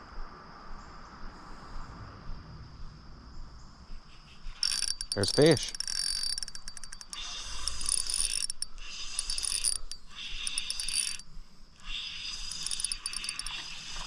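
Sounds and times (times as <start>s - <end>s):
fishing reel cranking and clicking: 4.6s - 14.0s.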